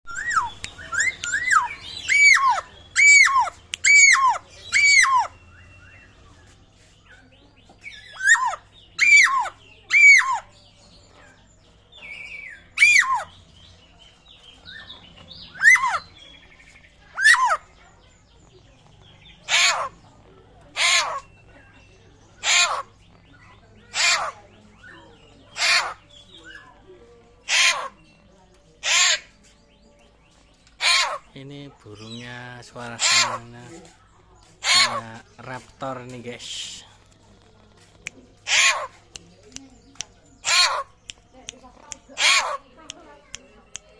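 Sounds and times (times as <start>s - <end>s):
bird whistling: 0.1s - 5.9s
harsh rasping bird calls: 0.1s - 29.8s, 30.4s - 43.9s.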